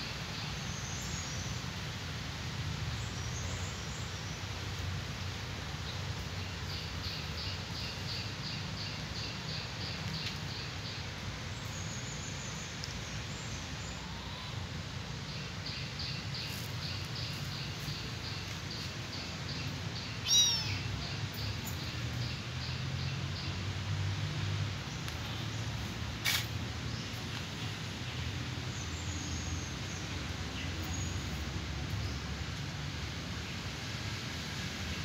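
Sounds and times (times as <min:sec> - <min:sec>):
bird chirping: 0:15.4 - 0:22.8
short loud bird cry: 0:20.2 - 0:20.9.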